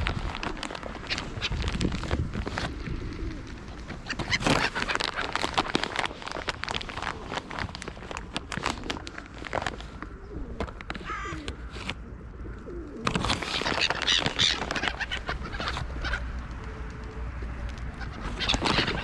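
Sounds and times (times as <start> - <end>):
pigeons cooing: 0.0 - 19.0
small birds chirping: 13.4 - 19.0.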